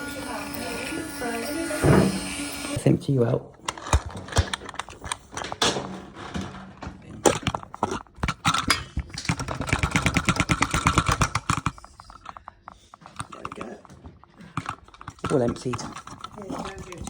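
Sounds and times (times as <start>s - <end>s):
plastic clicks and knocks: 3.6s - 17.0s
fast rattle of taps: 7.2s - 17.0s.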